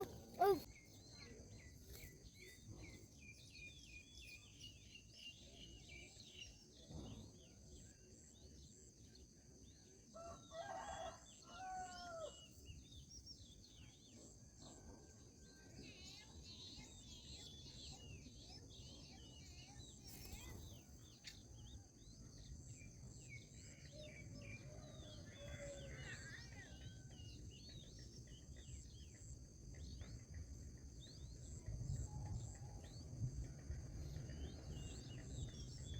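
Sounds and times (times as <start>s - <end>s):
small birds chirping: 0.0s - 7.6s, 15.5s - 35.9s.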